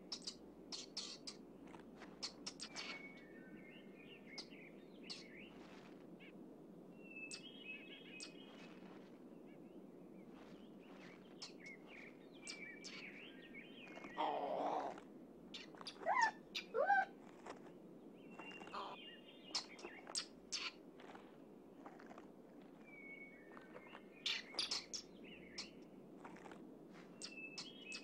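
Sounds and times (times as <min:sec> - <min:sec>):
birds chirping and whistling: 0:00.0 - 0:01.4, 0:02.2 - 0:05.7, 0:07.0 - 0:08.8, 0:10.4 - 0:15.0, 0:15.6 - 0:17.6, 0:18.2 - 0:21.2, 0:22.8 - 0:25.8, 0:27.2 - 0:28.0.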